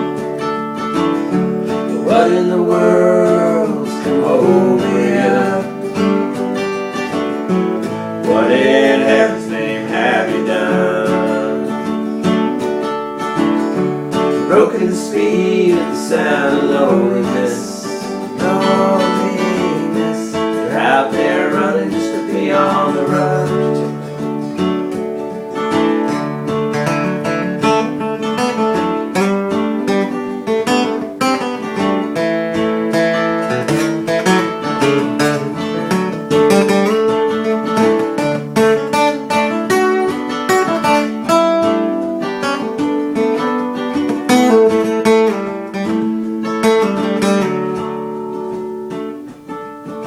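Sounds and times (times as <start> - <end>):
acoustic guitar strumming and picking: 0.0 - 50.0.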